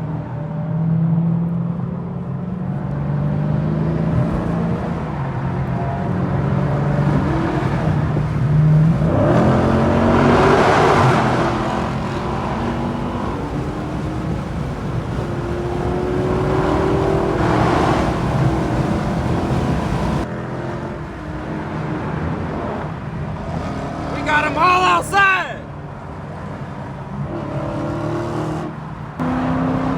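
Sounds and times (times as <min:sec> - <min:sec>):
car engines revving: 0:00.0 - 0:29.9
cars passing: 0:00.0 - 0:29.9.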